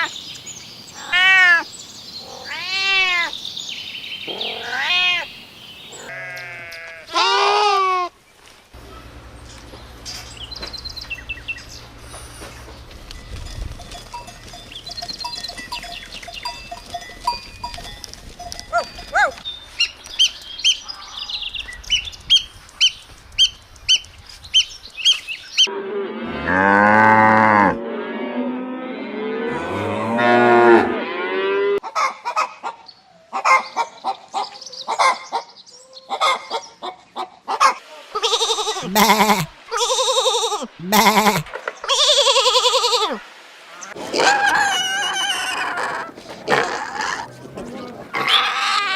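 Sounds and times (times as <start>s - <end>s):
cattle mooing: 25.7s - 31.8s.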